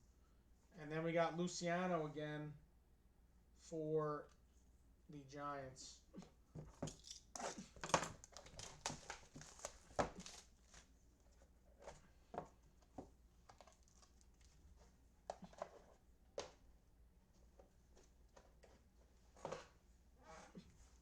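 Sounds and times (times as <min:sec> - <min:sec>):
card packaging crinkling: 0:06.9 - 0:10.9, 0:13.4 - 0:14.6.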